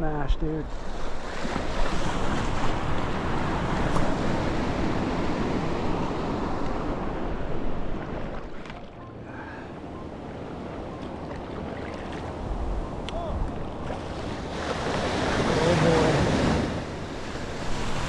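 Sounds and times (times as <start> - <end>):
surf breaking and rushing: 12.0 - 18.0.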